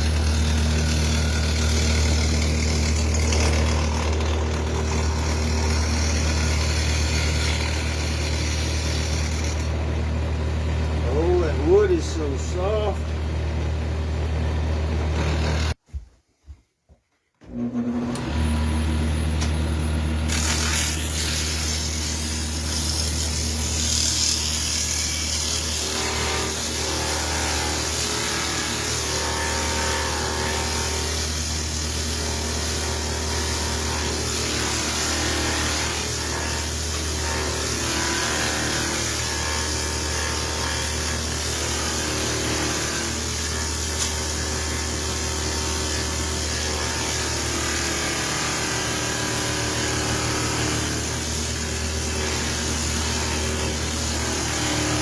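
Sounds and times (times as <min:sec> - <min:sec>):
hand tool scraping spinning wood: 0:00.0 - 0:10.0, 0:11.0 - 0:13.0
wood lathe motor hum: 0:00.0 - 0:15.8, 0:17.4 - 0:55.0.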